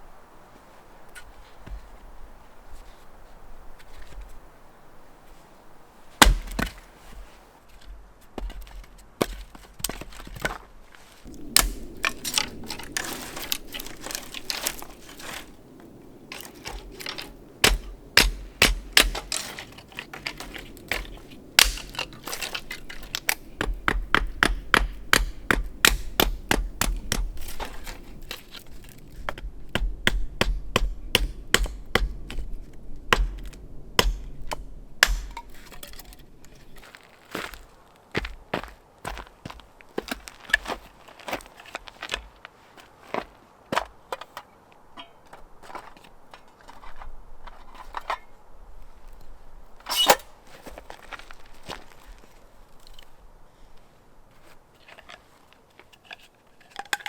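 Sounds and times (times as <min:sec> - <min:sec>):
crunching crinkling rustle: 0:00.0 - 0:23.6, 0:26.4 - 0:29.3, 0:35.3 - 0:57.0
dry wood cracking and snapping: 0:06.2 - 0:06.8, 0:07.7 - 0:29.5, 0:30.1 - 0:44.5.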